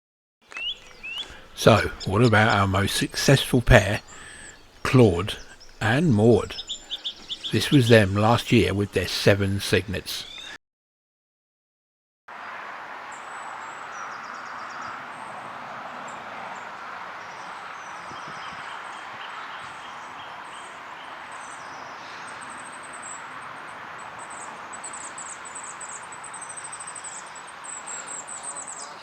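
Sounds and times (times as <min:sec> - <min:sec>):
fast trilling birdsong: 0:00.5 - 0:10.6, 0:13.3 - 0:15.4, 0:16.0 - 0:29.0
small birds chirping: 0:00.5 - 0:10.6, 0:13.1 - 0:29.0
steady background hiss: 0:00.5 - 0:10.6.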